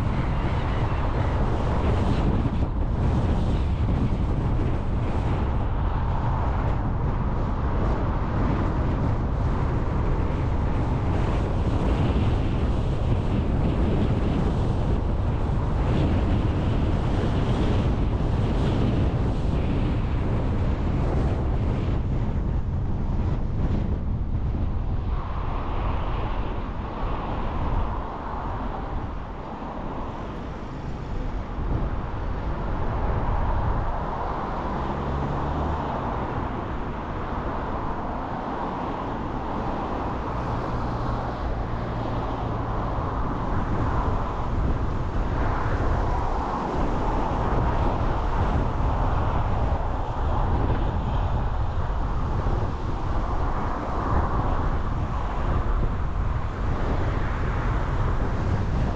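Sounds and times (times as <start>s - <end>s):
low engine hum: 0.0s - 58.9s
road and tyre noise: 0.0s - 58.9s.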